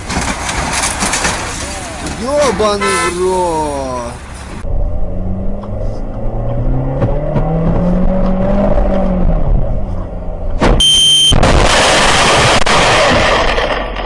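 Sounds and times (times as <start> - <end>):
vehicle engine revving: 4.2 - 10.6
short high beep: 10.8 - 11.4.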